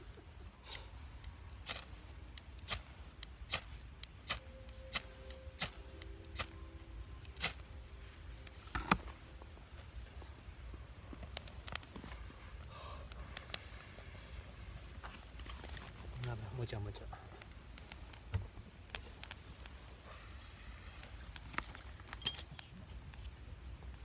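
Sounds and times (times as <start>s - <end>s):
wood fire crackling and popping: 9.2s - 20.0s
faint steady tone: 21.7s - 22.4s.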